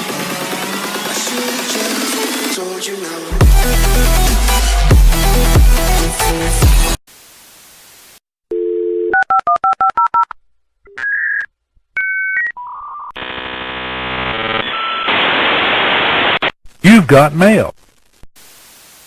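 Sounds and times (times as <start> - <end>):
dial tone: 8.5 - 10.2
touch-tone dialing beeps: 8.5 - 10.3
buzzing modem tone: 13.2 - 15.2.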